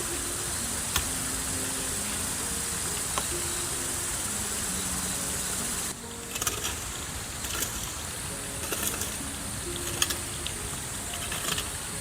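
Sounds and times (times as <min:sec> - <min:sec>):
faint background music: 0:00.0 - 0:12.0
high-pitched hiss: 0:00.0 - 0:12.0
small clicks: 0:06.2 - 0:11.8.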